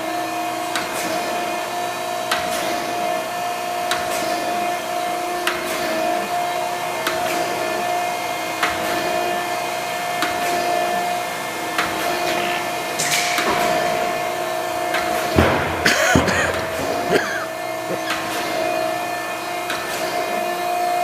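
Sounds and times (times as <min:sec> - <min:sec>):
surface grinder humming: 0:10.6 - 0:20.8.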